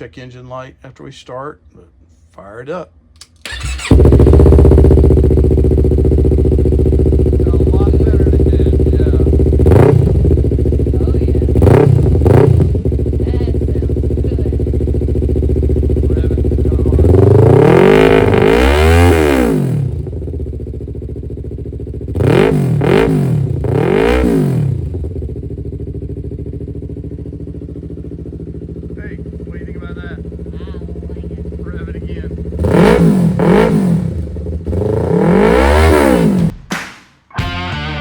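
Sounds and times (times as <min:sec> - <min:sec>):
motorcycle engine idling and revving: 0:03.5 - 0:36.6.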